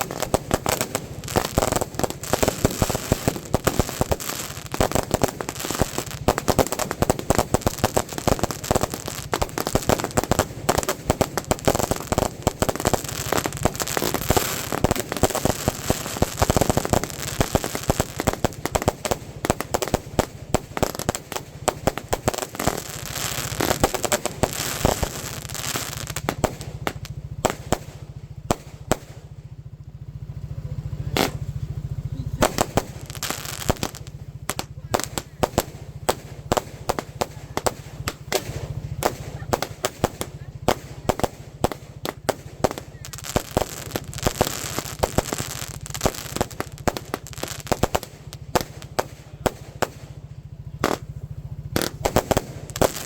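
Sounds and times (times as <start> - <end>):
fireworks banging and crackling: 0.0 - 53.0.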